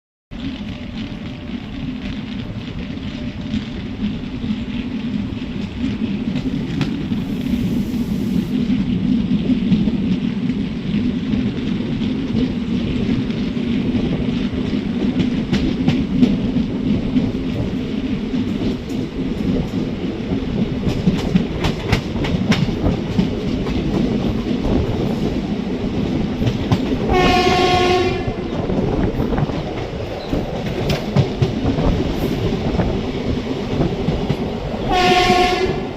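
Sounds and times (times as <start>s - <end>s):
wheels clicking over rail joints: 0.3s - 7.4s, 8.5s - 35.9s
train rumbling: 0.3s - 35.9s
train horn: 27.1s - 28.5s, 34.9s - 35.9s.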